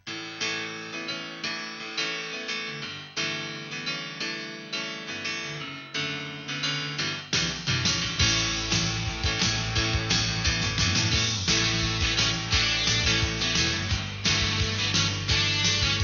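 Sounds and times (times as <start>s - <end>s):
melody of struck notes: 7.4s - 15.0s.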